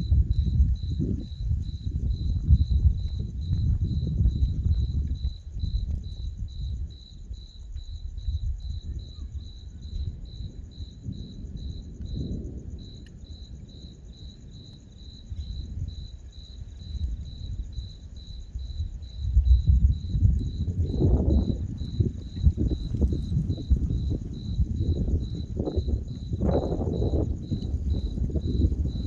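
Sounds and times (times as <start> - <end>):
low rumble: 0.0 - 6.9
cricket chirping: 0.0 - 29.0.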